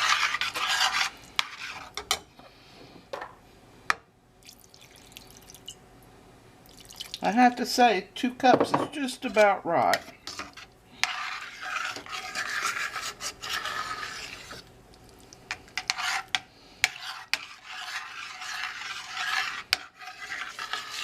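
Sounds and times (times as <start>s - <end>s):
utensil scraping a pot: 0.0s - 2.2s, 9.2s - 14.7s, 15.5s - 21.0s.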